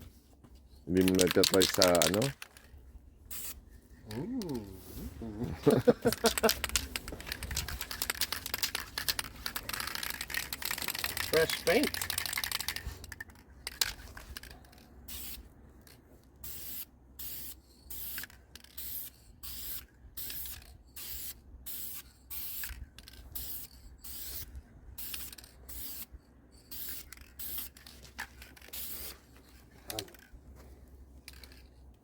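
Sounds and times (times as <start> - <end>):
spray paint hissing bursts: 3.3 - 3.6, 15.1 - 15.5, 16.4 - 27.8, 28.6 - 29.2.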